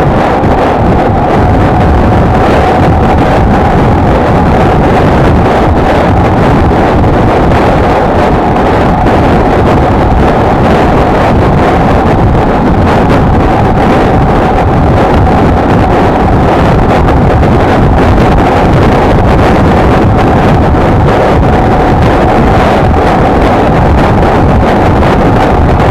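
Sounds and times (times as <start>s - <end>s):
wind buffeting microphone: 0.0s - 25.9s.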